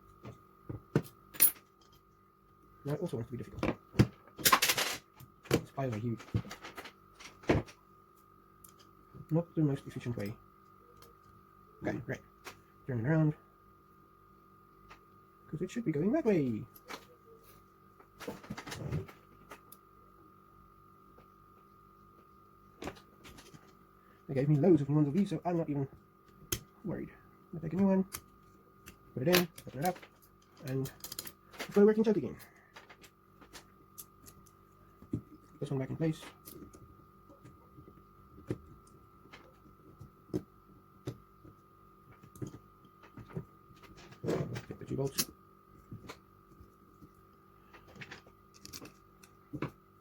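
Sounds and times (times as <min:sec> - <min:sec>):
faint high hum: 0:00.0 - 0:50.0
small metal parts clicking: 0:29.3 - 0:31.8, 0:48.5 - 0:49.4.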